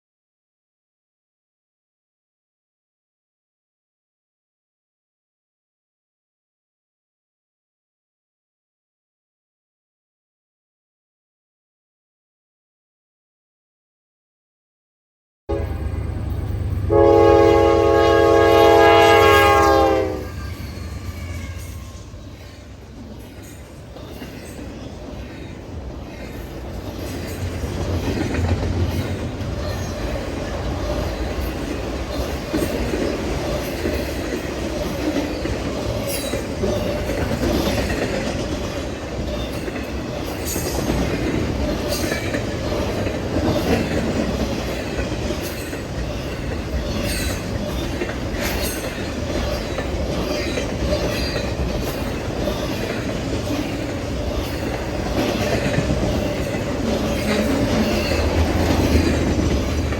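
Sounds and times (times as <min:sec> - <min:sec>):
train wheels rumbling on rail: 0:15.5 - 0:59.9.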